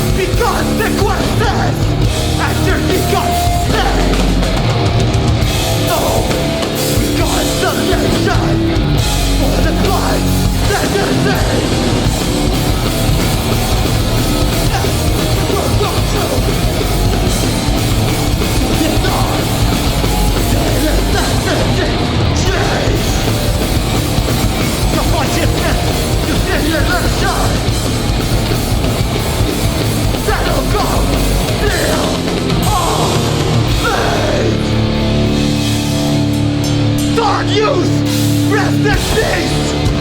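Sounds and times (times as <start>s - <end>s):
punk band playing live: 0.0s - 40.0s
person shouting vocals: 2.4s - 4.4s, 5.8s - 8.7s, 9.4s - 11.8s, 18.6s - 19.6s, 20.4s - 23.1s, 30.2s - 34.7s, 37.2s - 39.8s.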